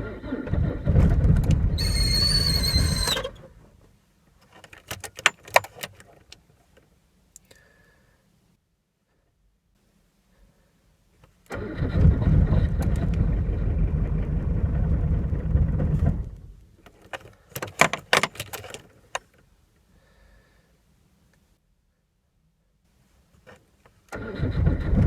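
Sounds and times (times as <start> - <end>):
diesel car engine cranking and running: 0.0 - 3.8, 4.5 - 6.4, 11.5 - 19.2, 24.1 - 25.0.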